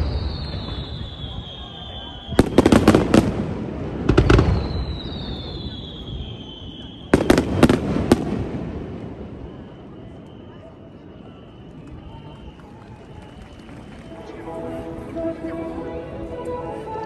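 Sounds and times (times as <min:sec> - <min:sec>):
fireworks bursting: 0:00.0 - 0:13.4.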